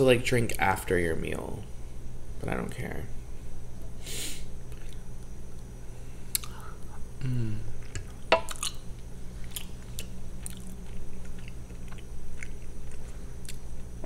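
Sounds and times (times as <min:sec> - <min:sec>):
person chewing food: 0:04.7 - 0:05.0, 0:06.3 - 0:06.6, 0:09.4 - 0:14.0
person humming mm: 0:06.4 - 0:07.8.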